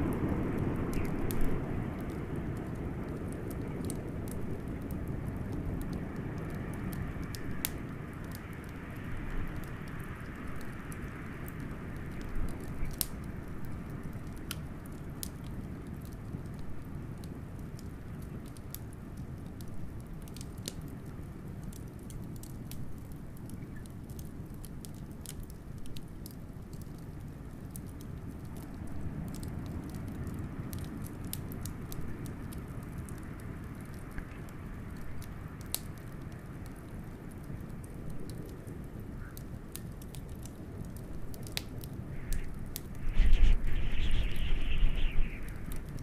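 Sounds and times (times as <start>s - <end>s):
howling blizzard wind: 0.0s - 18.5s, 28.5s - 46.0s
wood fire crackling and popping: 0.0s - 46.0s
whistling wind: 42.0s - 46.0s.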